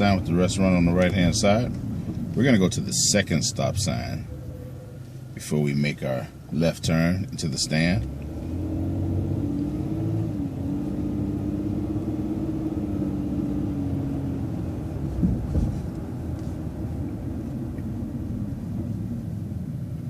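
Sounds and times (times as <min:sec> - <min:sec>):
bus engine rumbling: 0:00.0 - 0:20.0
drivetrain whine: 0:00.0 - 0:20.0
brief thump: 0:15.2 - 0:15.9.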